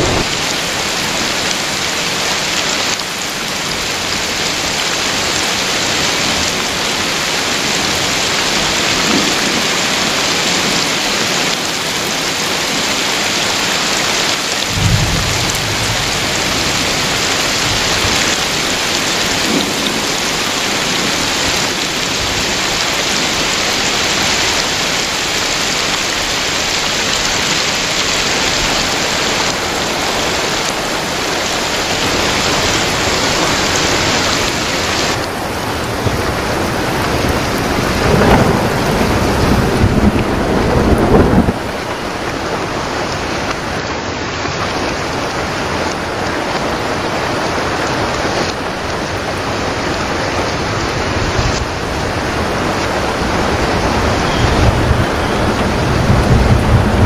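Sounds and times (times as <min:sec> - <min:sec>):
heavy rain splashing on ground: 0:00.0 - 0:57.0
low rumble of thunder: 0:14.6 - 0:22.4, 0:35.6 - 0:42.9, 0:51.3 - 0:57.0.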